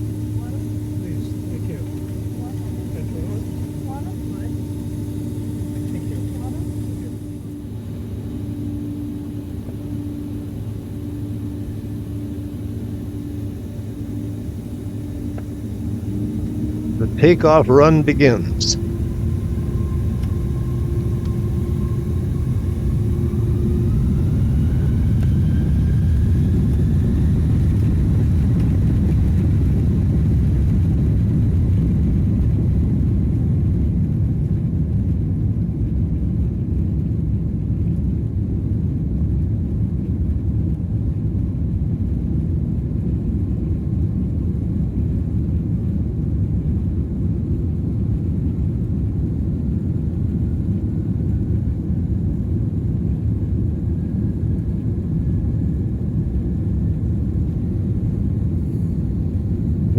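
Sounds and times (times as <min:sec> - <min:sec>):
wheels rumbling on runway: 0:00.0 - 0:17.5, 0:18.1 - 0:35.5
jet engines spooling up: 0:00.0 - 0:30.5.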